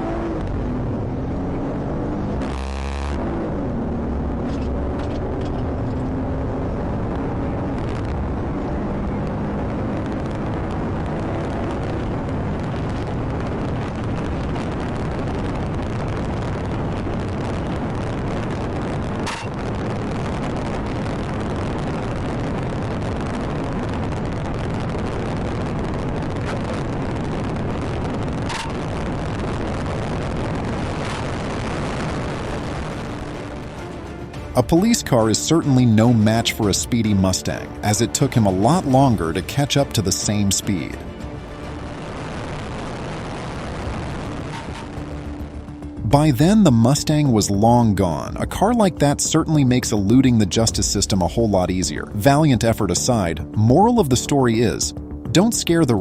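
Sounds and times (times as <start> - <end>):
car engine accelerating: 0.0 - 40.2
wind and road noise: 0.0 - 56.0.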